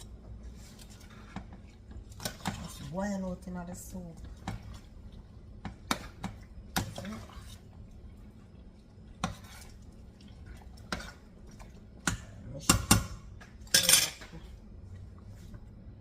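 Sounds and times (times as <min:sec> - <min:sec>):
utensils clinking against a pot: 0:12.0 - 0:14.5.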